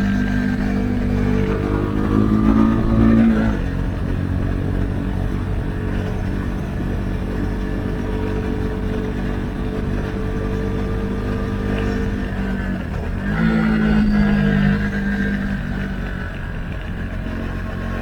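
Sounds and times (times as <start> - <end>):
motorcycle engine revving: 0.0 - 18.0
wind: 0.0 - 18.0.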